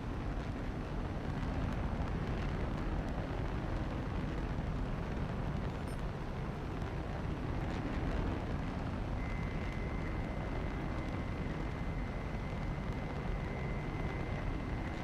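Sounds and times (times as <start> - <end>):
airplane low rumble: 0.0 - 15.0
high whine: 9.1 - 15.0.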